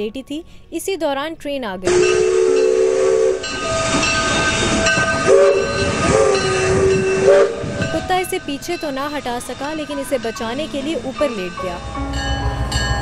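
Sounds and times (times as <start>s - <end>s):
train rushing past: 1.8s - 13.0s
train horn: 1.9s - 10.3s.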